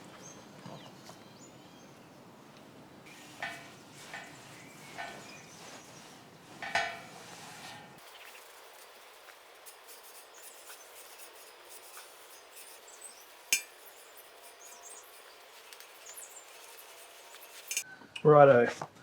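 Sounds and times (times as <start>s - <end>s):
sharp metallic clink: 13.5s - 14.1s.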